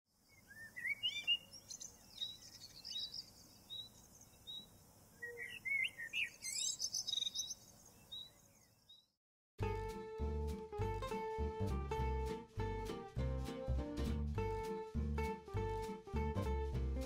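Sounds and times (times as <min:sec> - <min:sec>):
songbirds singing and chirping: 0:00.2 - 0:09.2.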